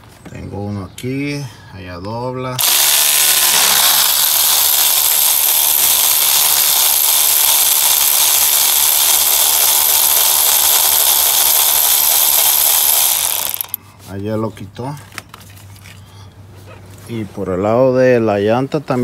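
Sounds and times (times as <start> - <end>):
cordless power tool running: 2.6 - 13.8.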